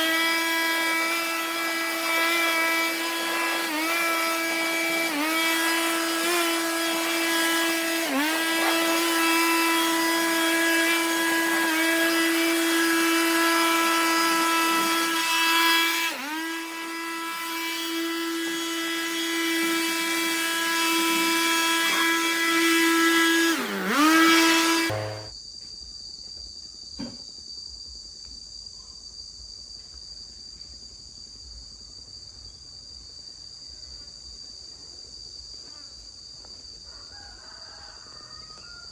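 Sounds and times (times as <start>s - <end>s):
power tool motor revving: 0.0s - 25.3s.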